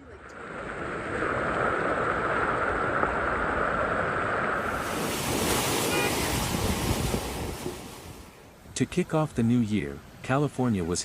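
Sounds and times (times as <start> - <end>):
wind buffeting microphone: 0.0 - 10.2
rushing floodwater: 0.0 - 11.0.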